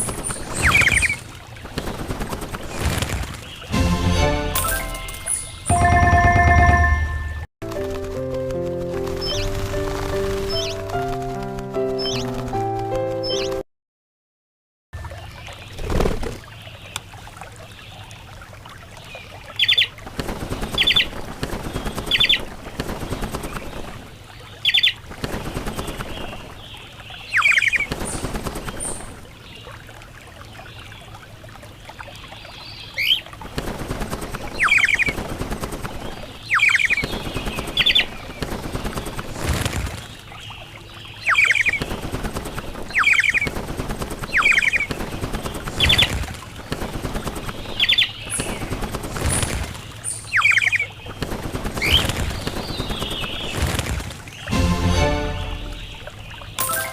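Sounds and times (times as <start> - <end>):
rustling noise: 7.7 - 12.8.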